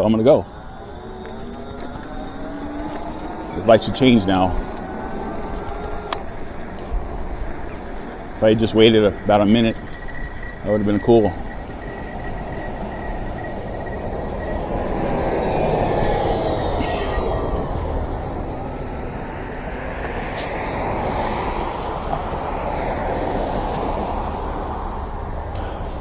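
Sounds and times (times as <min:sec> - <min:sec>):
faint motor whine: 0:00.0 - 0:19.6
tyres on wet road: 0:00.0 - 0:26.0.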